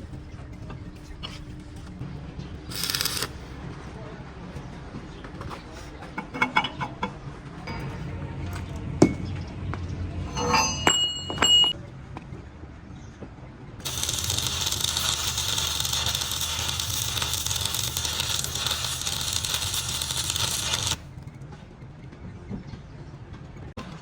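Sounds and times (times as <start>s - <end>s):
compressed air hissing: 2.7s - 3.4s, 13.8s - 21.0s
metal tools clinking: 10.3s - 11.8s.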